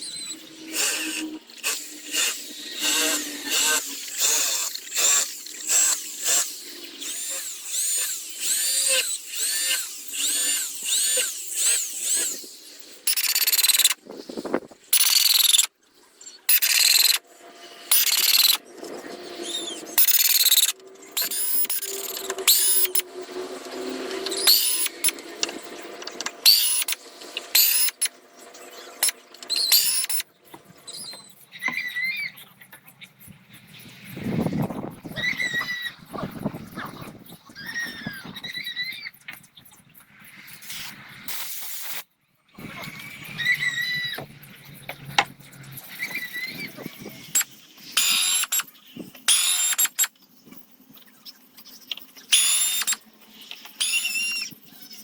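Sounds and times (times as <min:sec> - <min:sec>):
power carving tool cutting wood: 0:00.0 - 0:14.0, 0:15.0 - 0:15.7, 0:16.5 - 0:18.6, 0:19.2 - 0:30.2, 0:46.0 - 0:48.6, 0:49.3 - 0:50.1, 0:52.3 - 0:53.0, 0:53.8 - 0:54.6.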